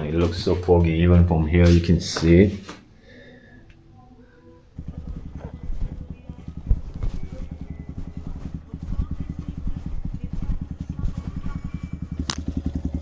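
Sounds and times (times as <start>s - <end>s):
motorcycle engine idling: 0.0s - 1.8s, 2.9s - 13.0s.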